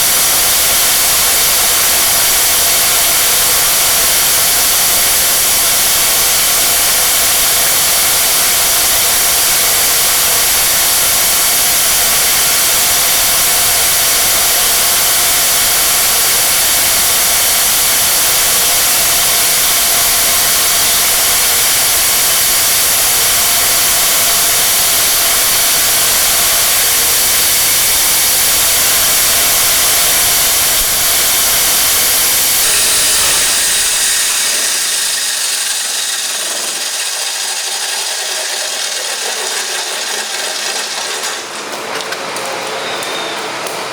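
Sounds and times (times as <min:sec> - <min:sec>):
angle grinder motor whining: 0:13.3 - 0:41.6.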